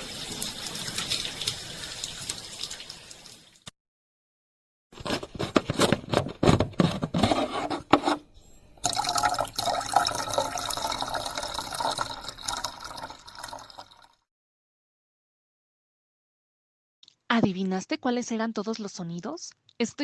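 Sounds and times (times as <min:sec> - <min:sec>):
running water filling a basin: 0:00.0 - 0:03.7, 0:08.8 - 0:14.2.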